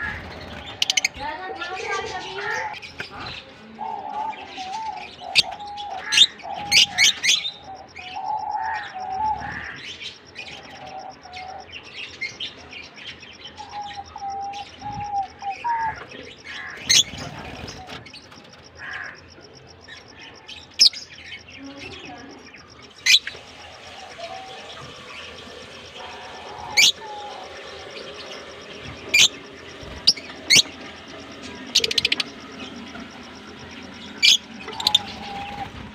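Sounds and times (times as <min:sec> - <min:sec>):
lovebirds chirping: 0:00.0 - 0:35.9
shrill bird calls: 0:22.9 - 0:35.8.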